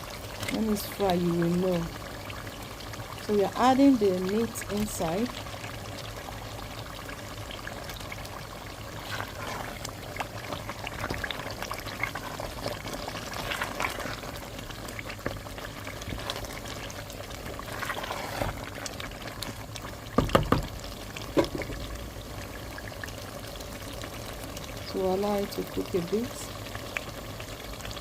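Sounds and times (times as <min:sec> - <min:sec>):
stew sizzling in oil: 0:00.0 - 0:28.0
loud knocks: 0:20.2 - 0:20.7.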